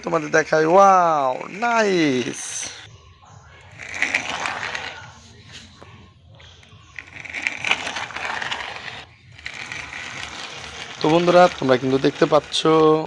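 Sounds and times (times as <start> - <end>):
toy wheels rolling on concrete: 0.0 - 2.9, 3.6 - 13.0.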